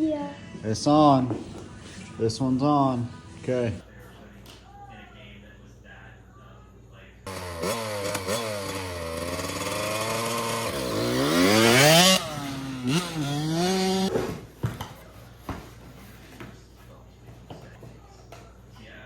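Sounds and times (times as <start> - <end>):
dirt bike engine revving: 7.3 - 14.1.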